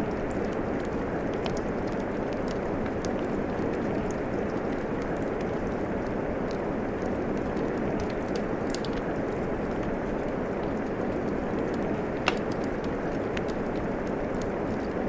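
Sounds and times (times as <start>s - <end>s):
fireplace crackling and popping: 0.0s - 15.0s
steady falling rain: 0.0s - 15.0s.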